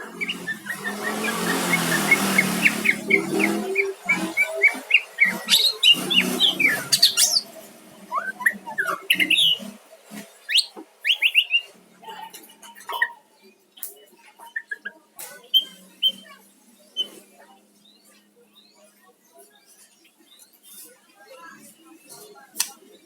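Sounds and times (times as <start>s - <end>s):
songbird whistling and chirping: 0.0s - 7.5s, 8.1s - 9.7s, 10.5s - 11.7s.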